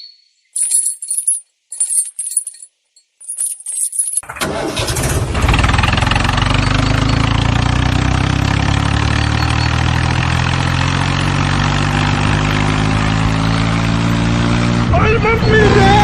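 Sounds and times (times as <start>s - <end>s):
tractor engine running: 4.2s - 16.0s.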